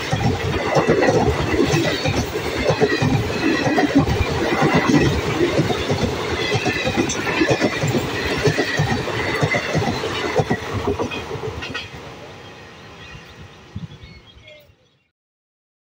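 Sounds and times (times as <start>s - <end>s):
train wheels clattering over rails: 0.0s - 12.1s.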